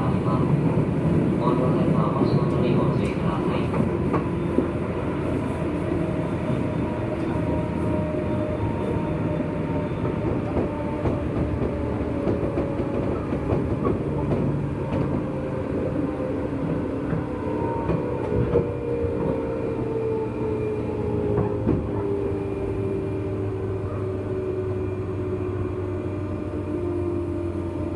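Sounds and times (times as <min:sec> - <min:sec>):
rail clicks: 0:00.0 - 0:15.4
train wheels rumbling on rail: 0:00.0 - 0:27.9.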